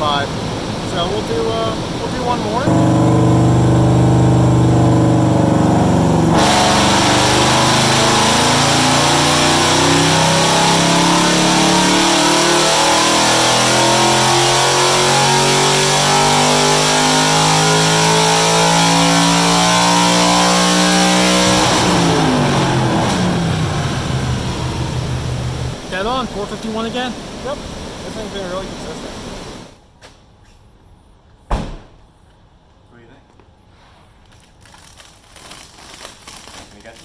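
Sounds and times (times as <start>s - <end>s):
car engine revving on dyno: 0.1s - 29.7s.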